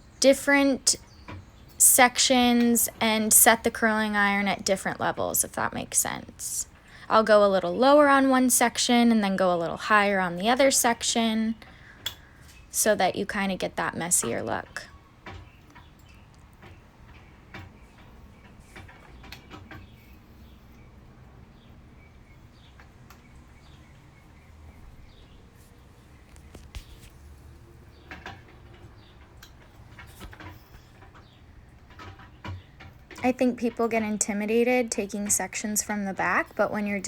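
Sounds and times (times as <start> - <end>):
low steady room hum: 0.0 - 37.0
light rustles: 24.8 - 32.8.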